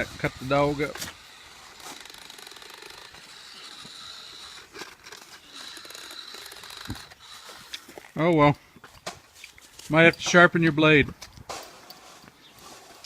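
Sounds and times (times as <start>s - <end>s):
toy chainsaw rattling: 0.0s - 8.2s.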